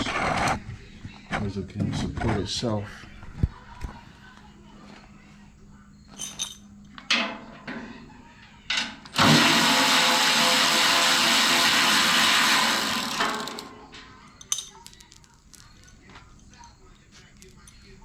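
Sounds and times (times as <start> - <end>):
power drill running: 9.1 - 13.7.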